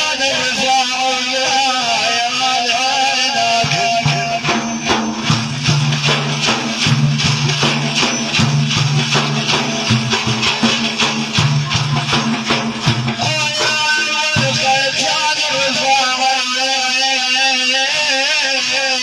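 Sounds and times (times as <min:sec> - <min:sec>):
hand percussion rhythm: 0:03.4 - 0:16.0.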